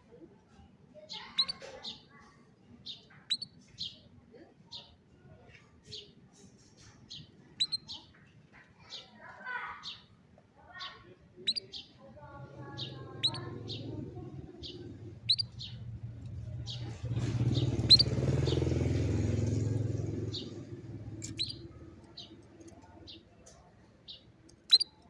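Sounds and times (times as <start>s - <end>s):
canary chirping: 1.1s - 2.0s, 2.9s - 4.0s, 6.9s - 8.2s, 10.9s - 25.0s.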